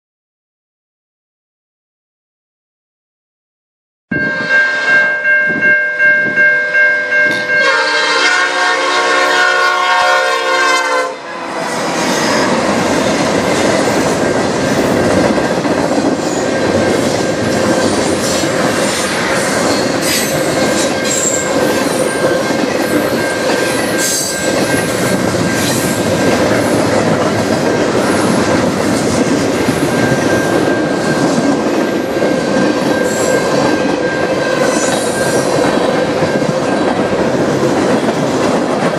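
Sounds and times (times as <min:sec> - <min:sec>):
level-crossing bell ringing: 0:04.1 - 0:08.0, 0:19.6 - 0:25.7, 0:29.8 - 0:36.7
freight train rumbling: 0:04.1 - 0:38.9
locomotive horn blast: 0:07.6 - 0:11.7
train wheels clacking on rail joints: 0:11.8 - 0:38.9.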